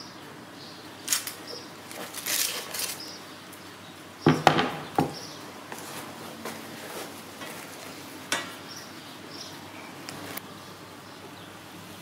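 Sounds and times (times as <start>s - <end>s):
knocks on wooden board: 4.3s - 5.2s.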